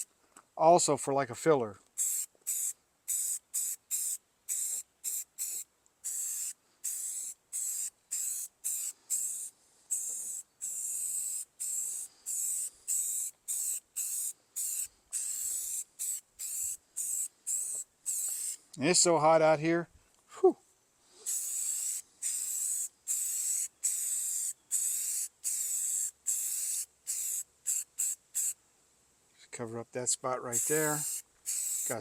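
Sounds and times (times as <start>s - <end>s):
spray paint can hissing: 2.0s - 18.6s, 21.2s - 28.6s, 30.5s - 32.0s.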